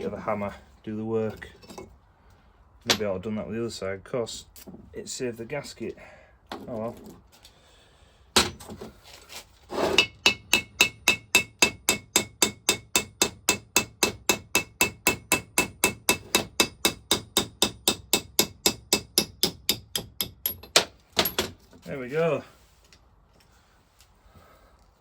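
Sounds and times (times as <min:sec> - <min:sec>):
hammer tapping on metal: 0:10.0 - 0:20.9.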